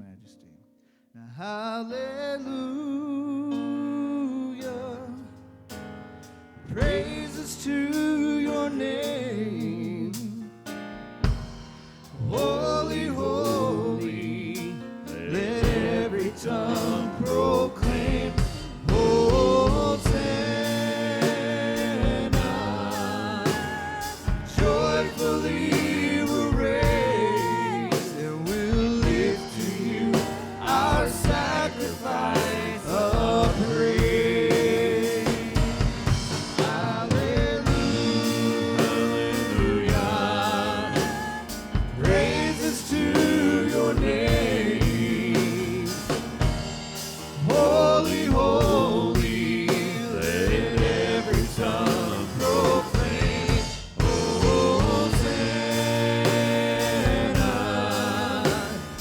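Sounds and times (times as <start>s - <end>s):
voices singing a praise song: 6.7s - 10.5s, 11.2s - 59.0s
drum kit steady beat: 6.8s - 7.6s, 11.2s - 12.3s, 15.6s - 59.0s.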